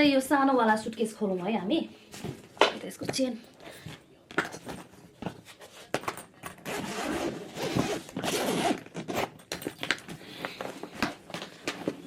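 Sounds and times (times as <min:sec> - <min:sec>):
suitcase zipper opening: 0:06.6 - 0:09.4.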